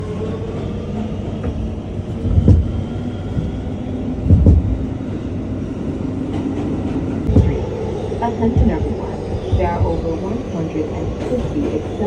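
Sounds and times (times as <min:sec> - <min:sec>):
subway train rumbling: 0:00.0 - 0:12.0
heavy low thumps: 0:01.5 - 0:05.5, 0:07.2 - 0:11.2.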